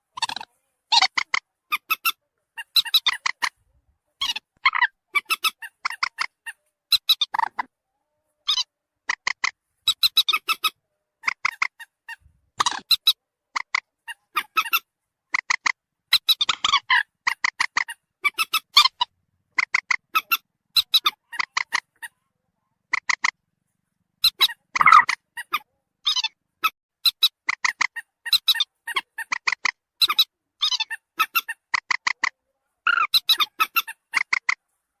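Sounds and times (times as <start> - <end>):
moorhen clucking calls: 0.0 - 3.6, 4.2 - 7.8, 8.4 - 22.2, 22.8 - 23.4, 24.2 - 34.6.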